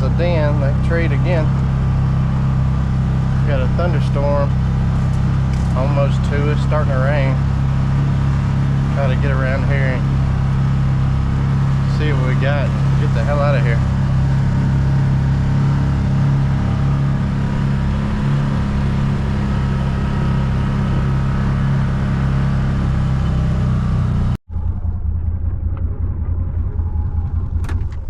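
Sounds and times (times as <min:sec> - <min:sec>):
road noise: 0:00.0 - 0:28.0
vehicle engine running: 0:00.0 - 0:28.0.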